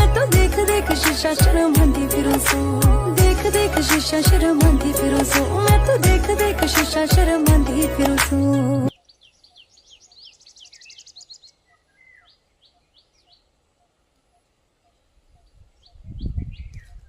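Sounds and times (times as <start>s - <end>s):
small birds chirping: 8.9s - 17.0s.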